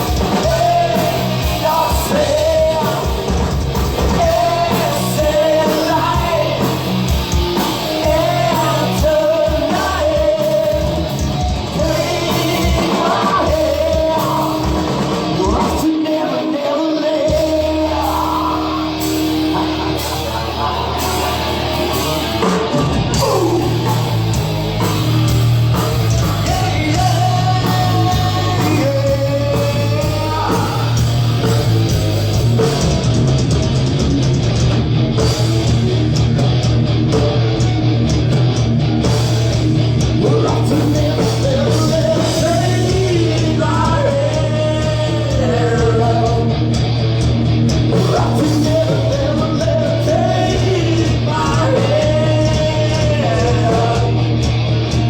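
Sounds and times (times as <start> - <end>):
person singing: 0.0 - 6.9, 8.0 - 25.0, 26.1 - 31.6, 40.2 - 46.6, 47.9 - 54.5
electric guitar: 0.0 - 55.0
live heavy metal band: 0.0 - 55.0.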